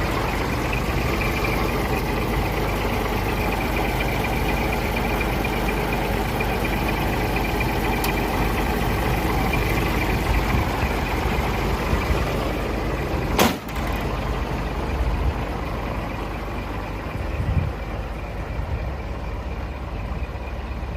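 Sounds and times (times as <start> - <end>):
truck diesel engine running: 0.0 - 20.9
sharp knock: 13.4 - 13.8.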